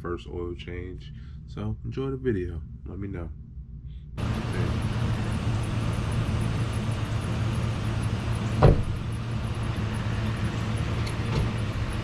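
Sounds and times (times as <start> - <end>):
truck engine idling: 4.2 - 12.0
sharp thump: 8.6 - 9.0.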